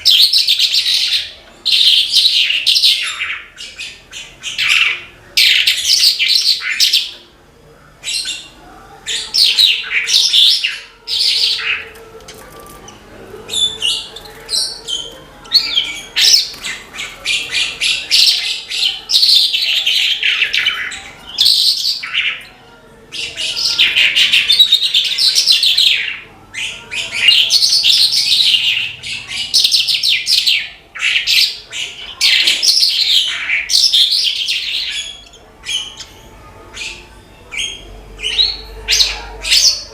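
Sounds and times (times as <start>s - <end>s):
bird singing rapid twittering: 8.0s - 39.9s.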